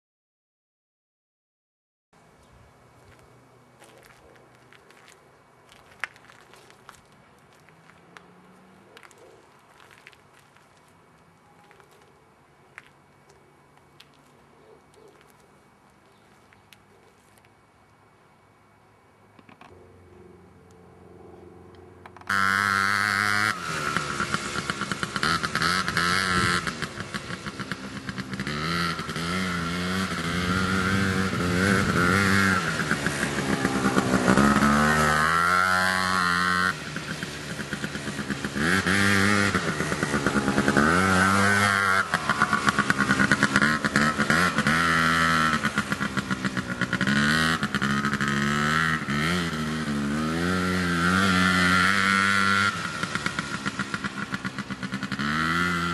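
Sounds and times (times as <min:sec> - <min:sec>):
quad bike engine revving: 0:20.1 - 0:55.9.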